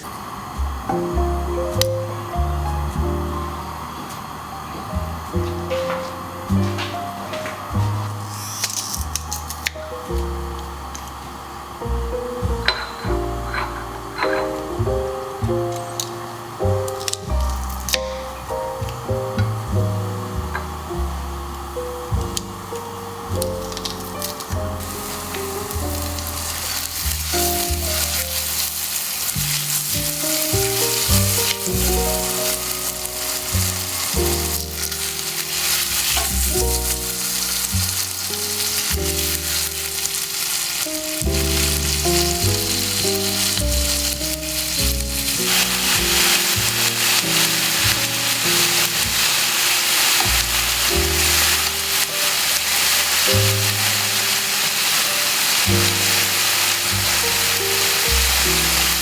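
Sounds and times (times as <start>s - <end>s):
food sizzling in a pan: 0.0s - 59.0s
slow background music: 0.0s - 59.0s
stirring in a pan: 23.6s - 59.0s.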